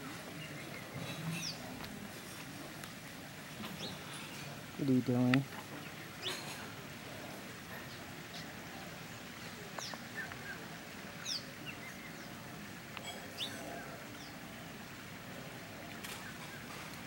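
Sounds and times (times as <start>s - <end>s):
birds chirping: 0.0s - 15.1s, 15.7s - 17.0s
steady outdoor hiss: 0.0s - 17.0s.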